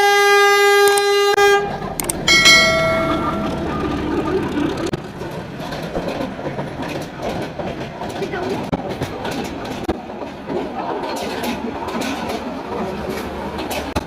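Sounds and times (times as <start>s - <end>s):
train horn blast: 0.0s - 1.9s
train running on rails: 0.0s - 14.0s.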